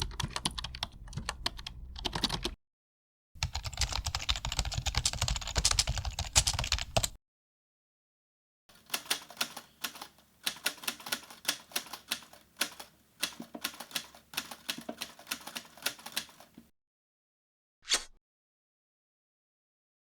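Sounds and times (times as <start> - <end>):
typewriter key clicks: 8.9 - 16.5.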